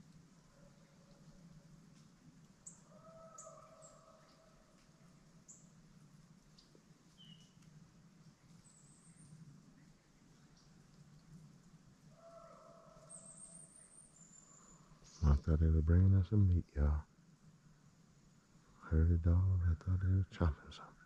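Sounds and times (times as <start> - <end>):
faint bird chirps: 2.6 - 5.8, 6.5 - 16.3.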